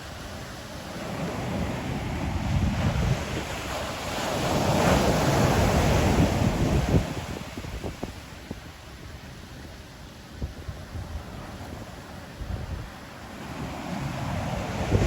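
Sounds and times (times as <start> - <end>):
wind buffeting microphone: 1.1 - 15.0.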